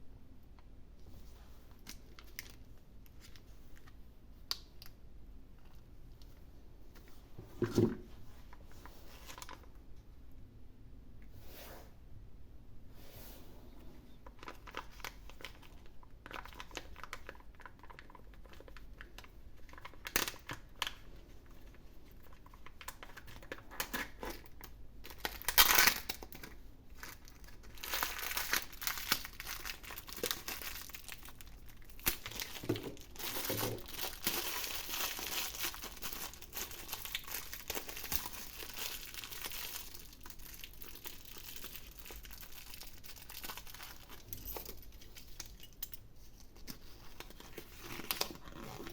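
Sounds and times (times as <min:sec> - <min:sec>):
foil wrapper crinkling and tearing: 0:14.4 - 0:21.0, 0:22.2 - 0:44.3, 0:46.5 - 0:48.9.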